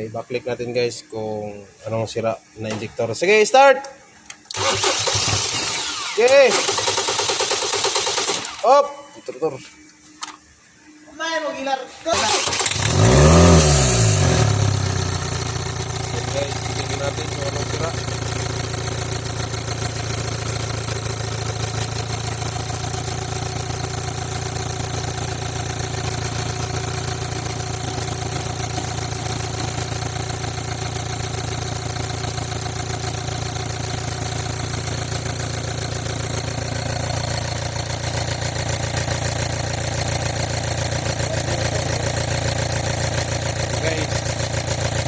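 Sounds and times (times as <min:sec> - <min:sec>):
car engine idling: 0:12.6 - 0:45.0.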